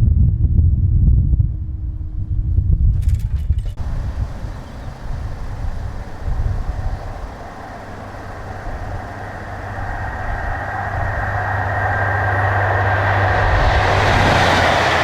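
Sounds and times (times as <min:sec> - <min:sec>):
diesel train engine hum: 0:03.8 - 0:15.0
rail noise: 0:03.8 - 0:15.0.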